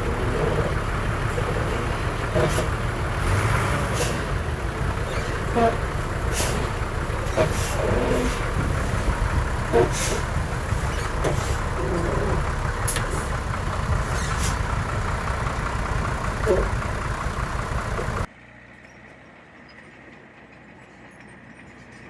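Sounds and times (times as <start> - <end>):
diesel machinery engine rumble: 0.0 - 18.6
machine squeaks: 5.0 - 15.4.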